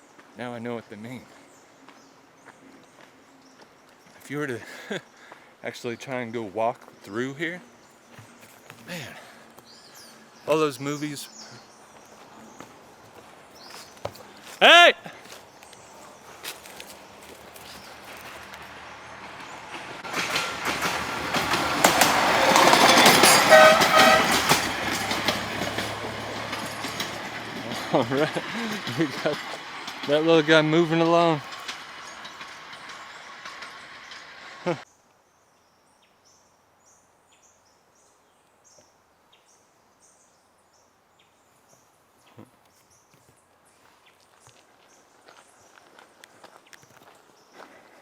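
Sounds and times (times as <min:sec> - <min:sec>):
train wheels clattering: 0:16.4 - 0:34.7
train horn toots: 0:22.7 - 0:25.1.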